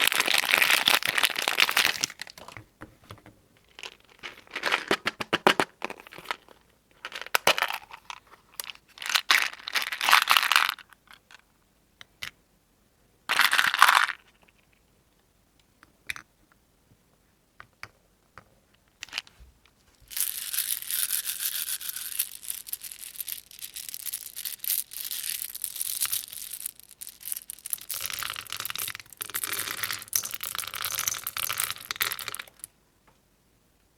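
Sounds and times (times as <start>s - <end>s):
soap wrapping crinkling: 0.0s - 10.1s.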